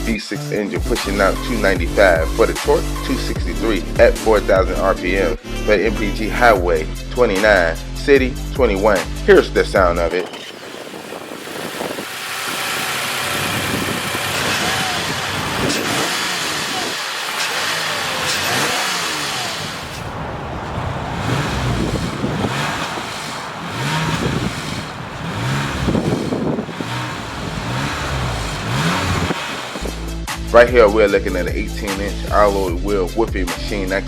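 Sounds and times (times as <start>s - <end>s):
car engine revving: 10.1s - 30.3s.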